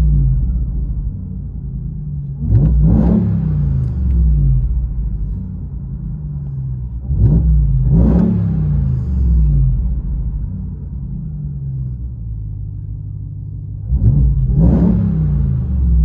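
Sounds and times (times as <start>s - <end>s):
truck engine idling and revving: 0.0s - 16.0s.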